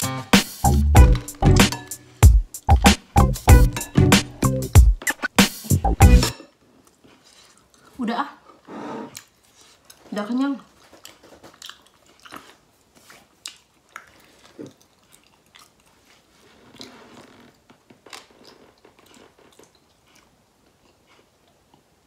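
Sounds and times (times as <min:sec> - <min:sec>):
person chewing: 0:06.2 - 0:08.0, 0:08.6 - 0:10.1, 0:10.7 - 0:22.0.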